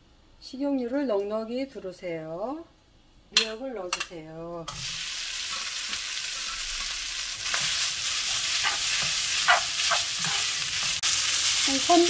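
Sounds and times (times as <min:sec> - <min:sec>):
food sizzling in hot oil: 0:04.7 - 0:12.0
spatula scraping a pan: 0:05.4 - 0:11.1.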